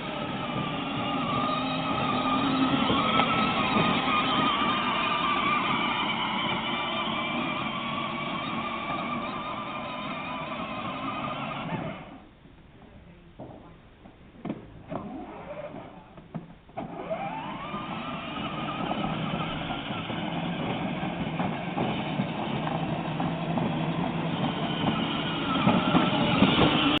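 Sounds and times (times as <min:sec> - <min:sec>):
vehicle motor starting and running: 0:00.0 - 0:12.4, 0:14.4 - 0:27.0.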